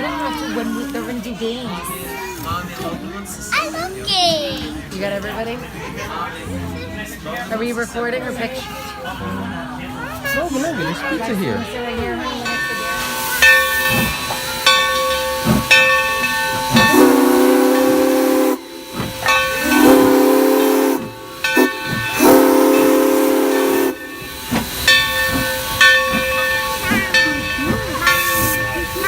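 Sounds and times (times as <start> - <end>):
hiss of steam: 12.6 - 29.0
steam locomotive whistle: 12.6 - 29.0.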